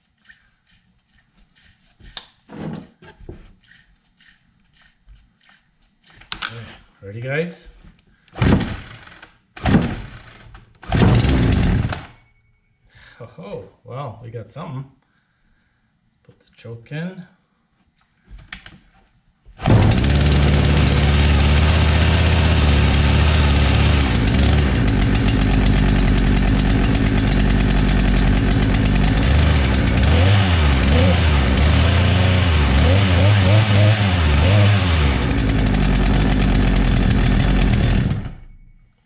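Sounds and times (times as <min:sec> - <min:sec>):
chainsaw engine running: 0:11.0 - 0:12.0, 0:19.6 - 0:38.4.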